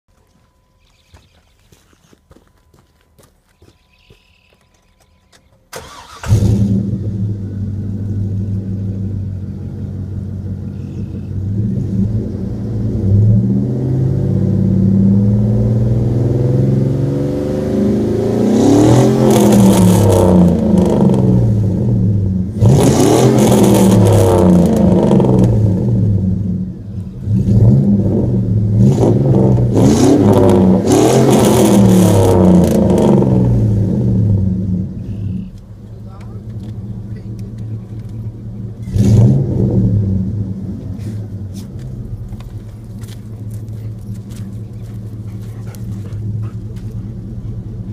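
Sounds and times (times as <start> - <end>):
loud truck engine starting and revving: 5.7 - 35.4, 36.5 - 42.5.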